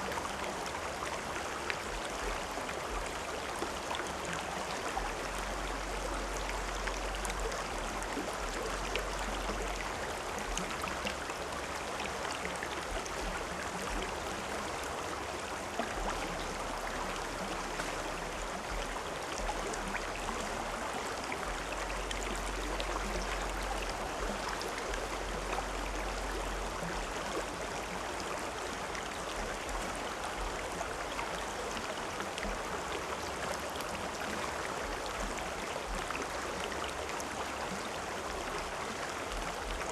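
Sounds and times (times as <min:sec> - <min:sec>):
river water rushing: 0:00.0 - 0:39.9
small water splashes: 0:00.0 - 0:39.9.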